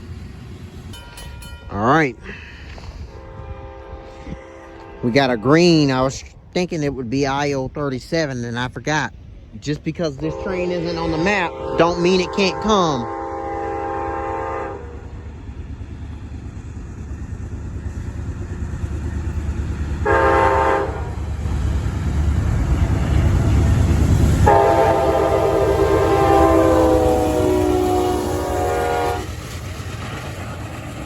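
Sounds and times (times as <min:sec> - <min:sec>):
diesel locomotive engine rumble: 0:00.0 - 0:31.0
train air horn blasts: 0:02.2 - 0:05.6, 0:10.2 - 0:15.2, 0:20.0 - 0:21.2, 0:24.4 - 0:29.4.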